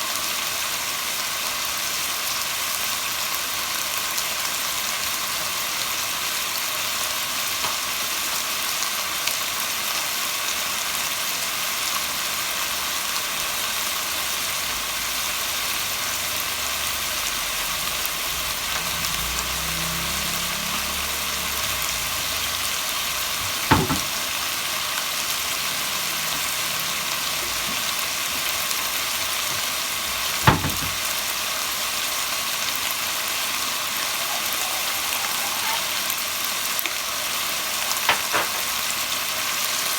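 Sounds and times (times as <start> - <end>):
chicken sizzling in hot oil: 0.0 - 39.9
sharp knocks: 23.4 - 24.2.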